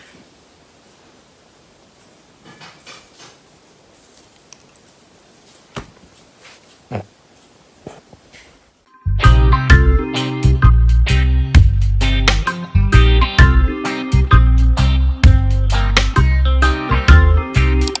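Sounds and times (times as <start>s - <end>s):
rustling of fur and cushions: 1.8s - 8.8s.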